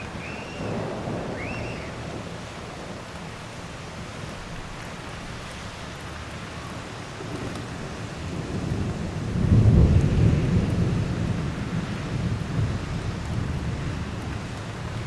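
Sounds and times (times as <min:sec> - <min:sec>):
thunder rumbling: 0:00.0 - 0:03.6, 0:07.2 - 0:15.0
heavy rain hissing: 0:00.0 - 0:15.0.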